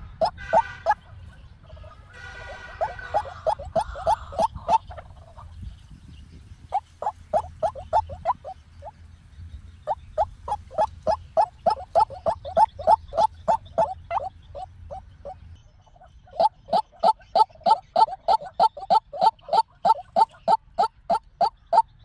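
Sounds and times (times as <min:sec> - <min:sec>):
waterhen calling: 0:00.0 - 0:01.2, 0:01.8 - 0:05.5, 0:06.7 - 0:08.9, 0:09.9 - 0:22.0.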